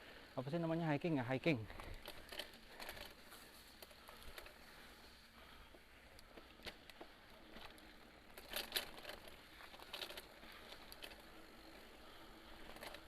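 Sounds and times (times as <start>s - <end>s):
mountain bike rattling on dirt trail: 0.0s - 13.0s.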